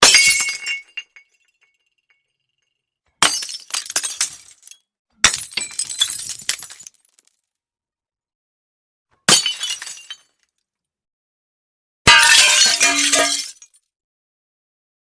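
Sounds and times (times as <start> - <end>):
mug smashing: 12.1 - 13.5
shards tinkling: 12.1 - 13.5
pieces clattering and clinking: 12.1 - 13.7.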